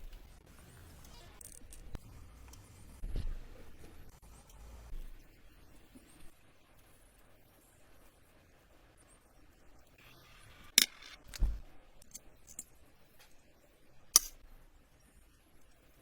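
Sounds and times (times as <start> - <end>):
sharp clicks of small parts: 10.7 - 11.4, 12.0 - 13.3, 14.1 - 14.5.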